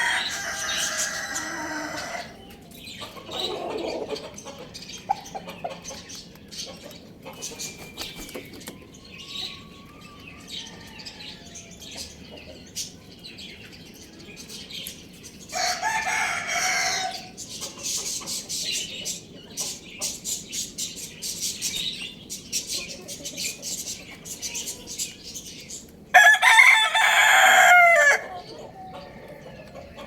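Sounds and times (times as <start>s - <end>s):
rooster crowing: 0.0s - 2.5s, 9.2s - 11.8s, 15.5s - 17.3s, 26.1s - 29.6s
chicken clucking: 0.0s - 13.1s, 15.6s - 20.7s, 22.6s - 25.2s, 25.8s - 30.0s
small birds chirping: 0.0s - 30.0s.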